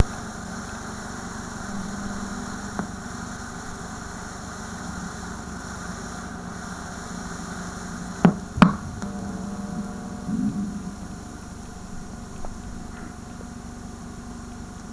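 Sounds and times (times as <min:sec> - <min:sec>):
low buzz: 0:00.0 - 0:14.9
tape static hiss: 0:00.0 - 0:14.9
sharp pops: 0:08.2 - 0:09.1.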